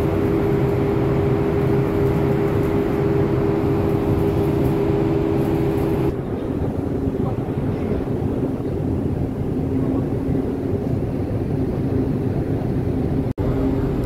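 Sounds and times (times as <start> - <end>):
ship engines droning: 0.0 - 14.0.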